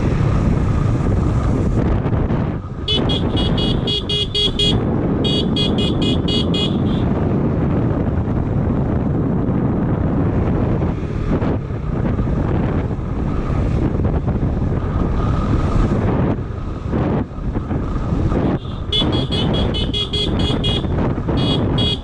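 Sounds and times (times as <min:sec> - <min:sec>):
motorcycle wind and road noise: 0:00.0 - 0:22.0
vehicle horn short beeps: 0:02.9 - 0:07.1, 0:18.5 - 0:22.0.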